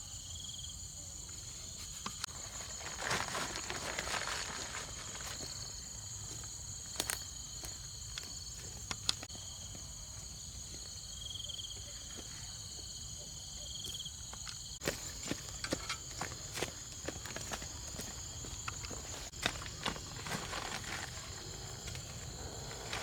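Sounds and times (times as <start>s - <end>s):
high-pitched insect chorus: 0.0s - 23.0s
pulsing insect trill: 13.0s - 23.0s.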